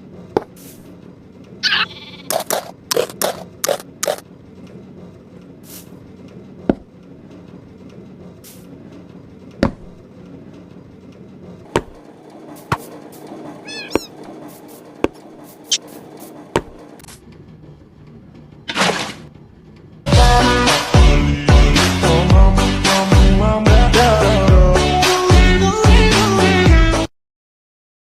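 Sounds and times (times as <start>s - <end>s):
birds chirping: 1.6s - 2.3s, 13.6s - 14.3s.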